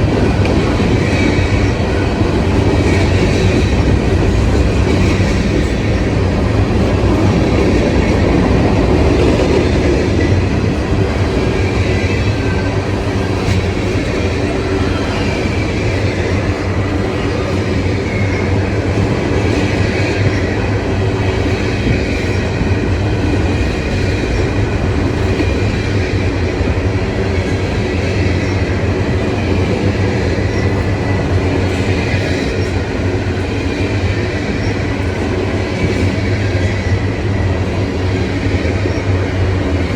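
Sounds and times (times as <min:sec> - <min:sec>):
train wheels rumbling and clicking: 0:00.0 - 0:39.9
wheel on rail squeal: 0:00.0 - 0:39.9.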